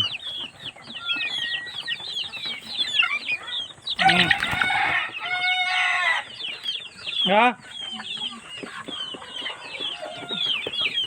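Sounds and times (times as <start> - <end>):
chicks peeping and chirping: 0.0 - 11.0
rooster crowing: 4.0 - 6.3.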